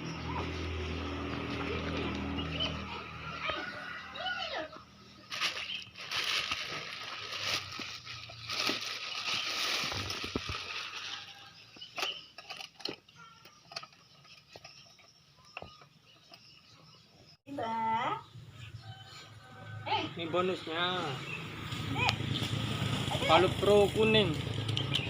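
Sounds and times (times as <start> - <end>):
packaging rustling: 5.3 - 12.9
parts clicking and knocking: 11.7 - 16.6.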